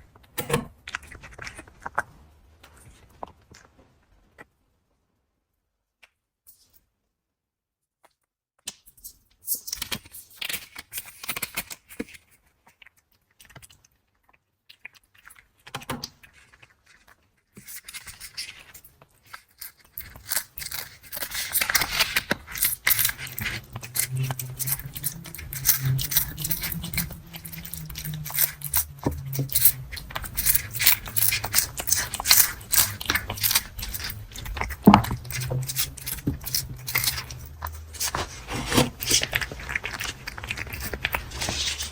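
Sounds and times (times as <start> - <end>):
low steady hum: 22.4 - 41.9.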